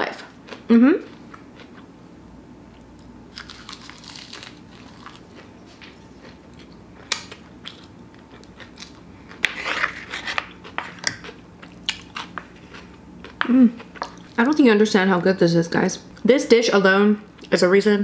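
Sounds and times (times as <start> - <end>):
crunching and chewing seaweed roll: 2.8 - 14.4.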